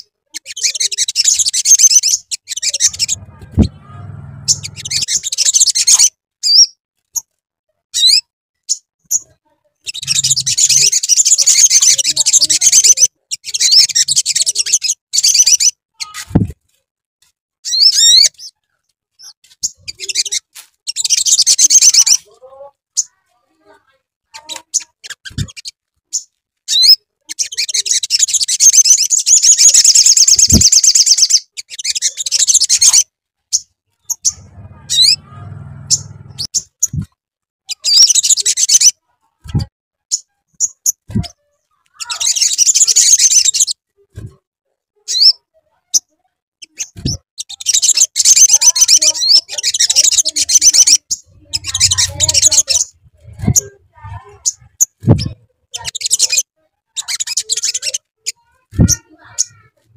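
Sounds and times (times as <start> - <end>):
bird rapid high trills: 2.0 - 6.0, 10.0 - 12.1, 49.8 - 54.1
short low thumps: 2.9 - 5.1, 53.0 - 54.2.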